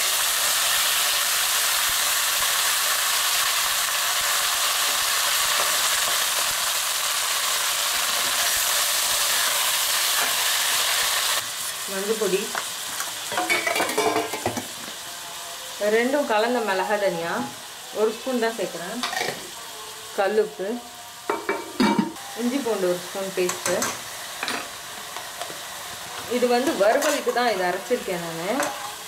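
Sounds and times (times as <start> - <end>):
chicken sizzling in hot oil: 0.0 - 29.0
metal ladle turning food: 26.2 - 27.8.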